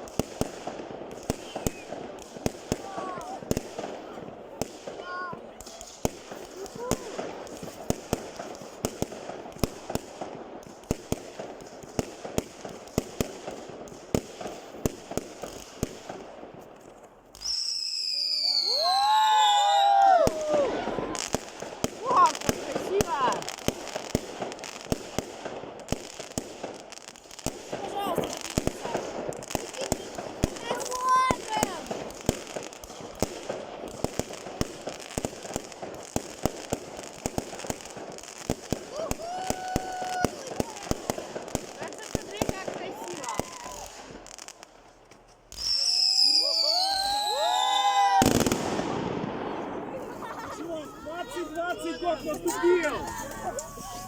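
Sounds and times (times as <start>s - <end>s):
firework bangs: 0.0s - 16.7s, 17.3s - 54.0s
firework crackling: 0.0s - 54.0s
high falling whistle: 17.4s - 20.4s, 45.6s - 48.3s.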